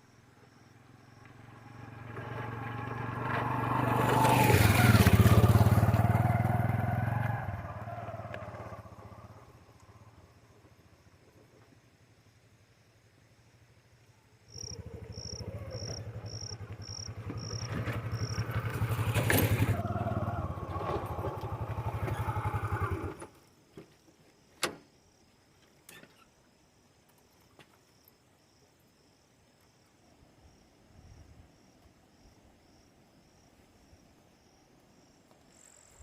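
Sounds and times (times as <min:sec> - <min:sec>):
crickets chirping: 0:00.0 - 0:36.0
motorcycle engine running: 0:01.3 - 0:07.2, 0:14.5 - 0:23.4.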